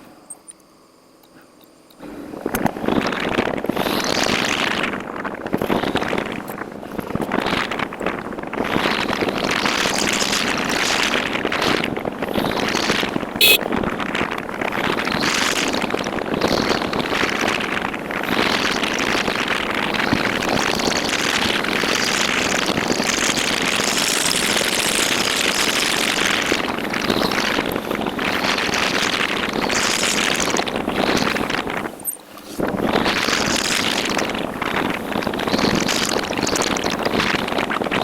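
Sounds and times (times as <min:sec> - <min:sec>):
road noise: 0:02.0 - 0:32.8
wind noise on microphone: 0:02.0 - 0:38.0
motorcycle engine: 0:13.4 - 0:13.7.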